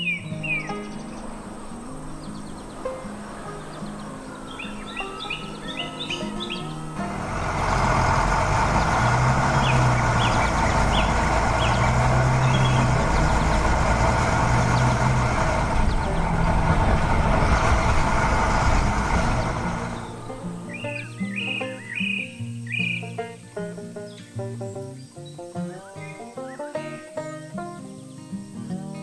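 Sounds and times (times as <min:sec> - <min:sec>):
heavy vehicle engine running: 0:00.5 - 0:22.2.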